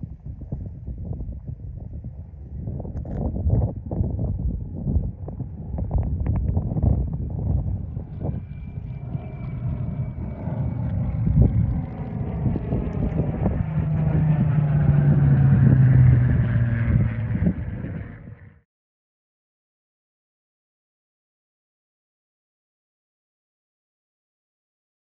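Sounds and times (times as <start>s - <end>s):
wind buffeting microphone: 0.0s - 18.6s
propeller plane engine flyby: 0.0s - 18.7s.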